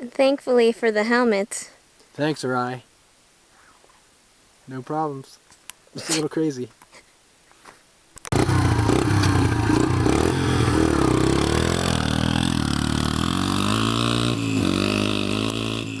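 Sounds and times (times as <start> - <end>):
dirt bike engine revving: 8.3 - 16.0.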